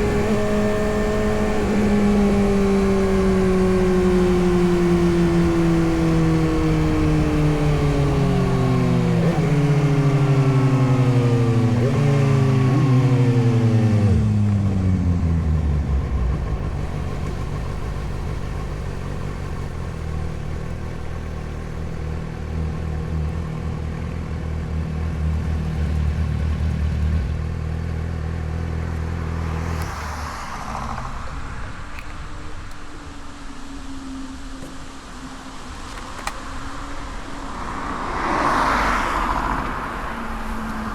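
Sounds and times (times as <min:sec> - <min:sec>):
motorcycle engine idling: 0:12.6 - 0:29.1
short rushing noise: 0:29.4 - 0:32.7.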